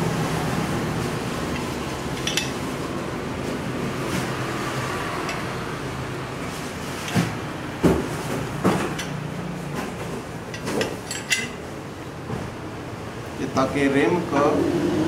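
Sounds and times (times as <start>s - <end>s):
objects knocking and clunking: 1.5s - 2.8s, 6.4s - 12.6s.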